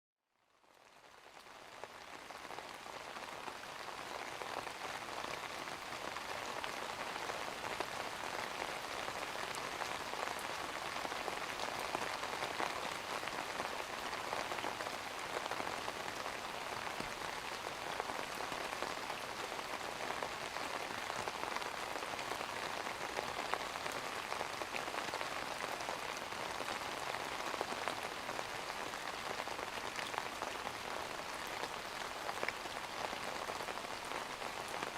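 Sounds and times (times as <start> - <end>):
steady rain: 0.4 - 34.9.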